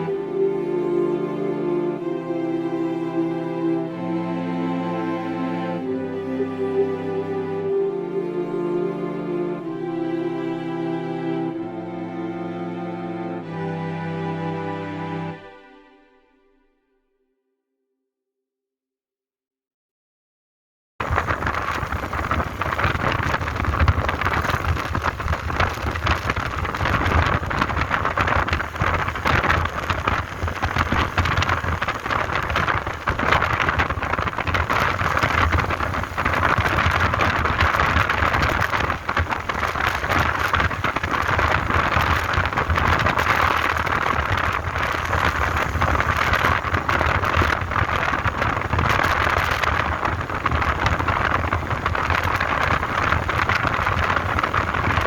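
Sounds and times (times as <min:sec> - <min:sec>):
steady rushing noise: 0:00.0 - 0:15.6, 0:21.0 - 0:55.0
fine crackling: 0:21.0 - 0:55.0.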